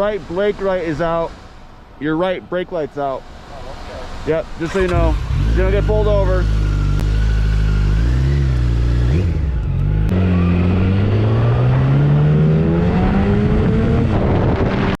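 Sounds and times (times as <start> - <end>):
motorcycle engine revving: 4.2 - 15.0.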